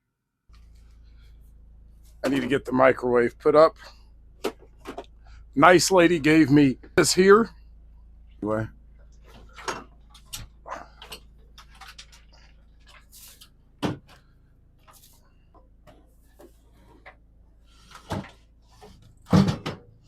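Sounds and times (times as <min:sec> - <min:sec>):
faint low hum: 0:00.0 - 0:20.0
microwave oven being handled: 0:17.9 - 0:20.0.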